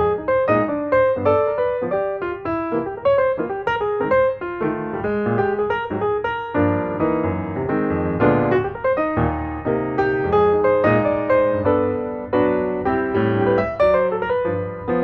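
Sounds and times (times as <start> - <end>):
lively piano music: 0.0 - 15.0.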